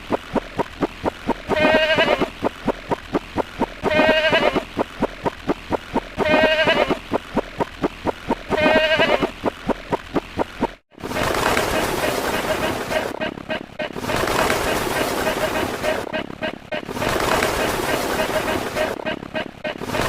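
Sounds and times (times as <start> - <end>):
fast run of sharp clicks: 0.0 - 1.6, 4.6 - 6.2, 7.0 - 8.6, 9.4 - 10.8.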